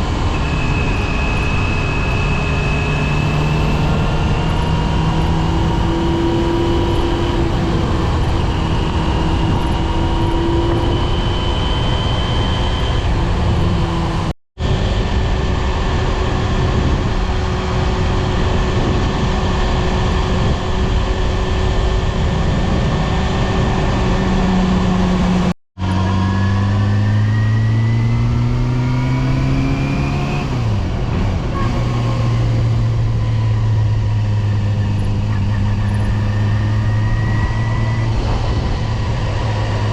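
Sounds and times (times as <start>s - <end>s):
motorcycle engine running: 0.0s - 39.9s
loud rushing noise: 29.9s - 39.9s.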